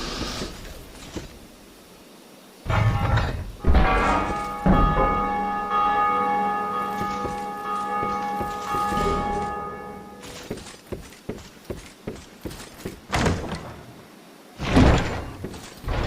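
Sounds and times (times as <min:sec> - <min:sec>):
church bell ringing: 0:03.8 - 0:10.4.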